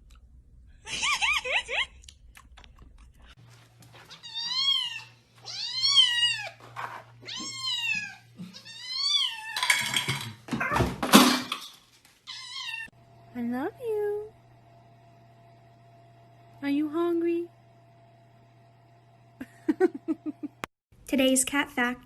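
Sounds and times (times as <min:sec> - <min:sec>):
cat meowing: 0:04.1 - 0:06.6, 0:07.2 - 0:09.7, 0:12.3 - 0:12.9.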